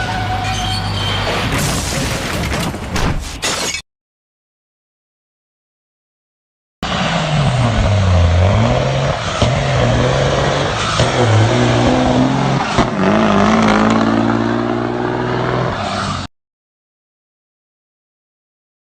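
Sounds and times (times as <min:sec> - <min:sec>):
vehicle engine revving: 0:06.8 - 0:16.0.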